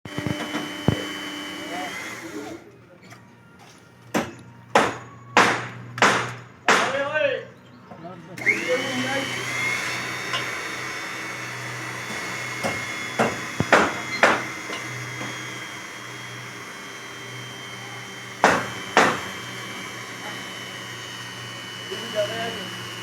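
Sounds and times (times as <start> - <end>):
machine humming and whining: 0.1 - 2.9, 8.3 - 23.0
sharp hammer-like knocks: 4.2 - 7.0, 12.6 - 14.5, 18.4 - 19.2.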